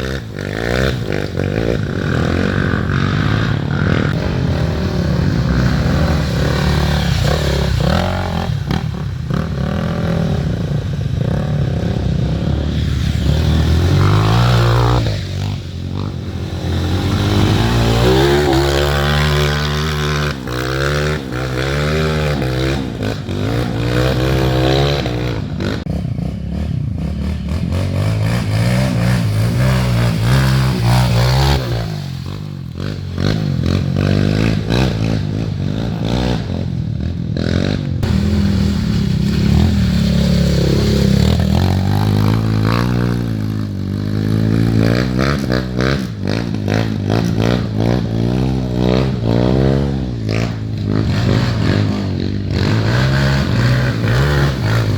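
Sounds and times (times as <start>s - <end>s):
motorcycle engines revving: 0.0s - 54.9s.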